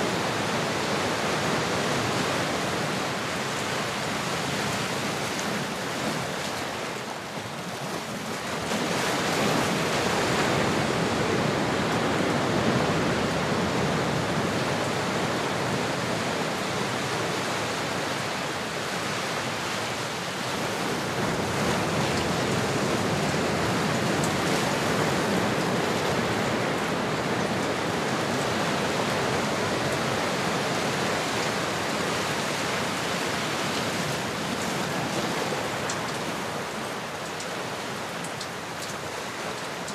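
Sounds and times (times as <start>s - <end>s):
ocean waves washing in: 0.0s - 39.9s.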